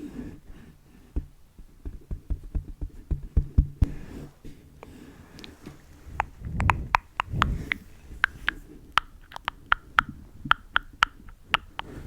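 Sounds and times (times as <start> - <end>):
soft low rustles: 3.0 - 9.0
small sharp clicks: 6.2 - 12.0.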